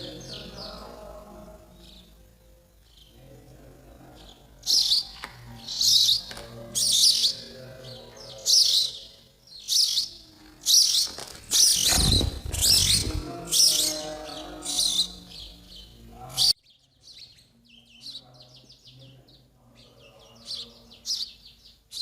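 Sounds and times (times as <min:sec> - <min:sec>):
baby sparrows chirping: 0:00.0 - 0:22.0
low rumble: 0:11.8 - 0:13.4.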